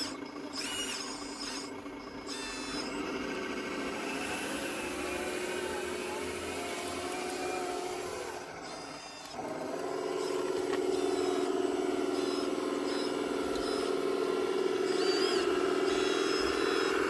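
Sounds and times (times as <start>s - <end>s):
electric motors whirring: 0.0s - 17.0s.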